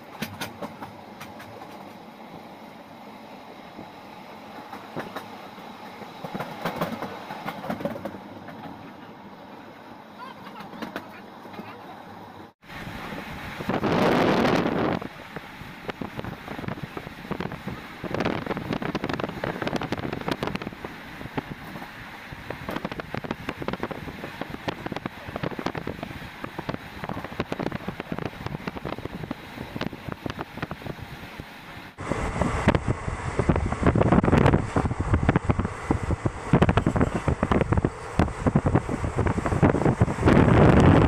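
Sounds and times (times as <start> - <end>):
train wheel knocks: 0.0 - 2.0, 4.5 - 5.4, 6.2 - 9.1
train running noise: 0.0 - 41.0.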